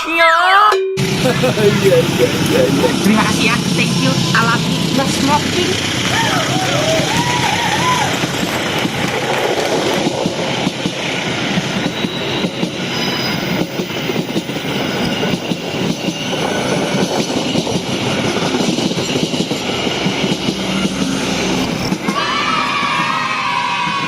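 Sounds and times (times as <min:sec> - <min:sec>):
train rumbling past: 0:01.0 - 0:24.0
faint wheel squeal: 0:11.8 - 0:13.8.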